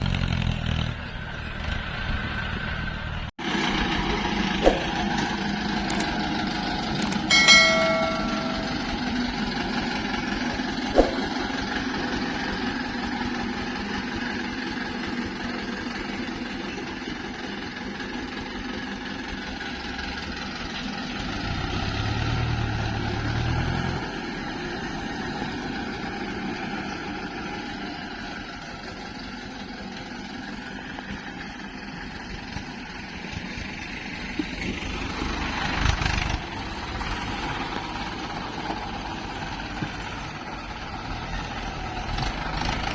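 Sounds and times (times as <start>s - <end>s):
diesel engines running: 0.0s - 42.9s
brief high-pitched tone: 7.3s - 9.2s.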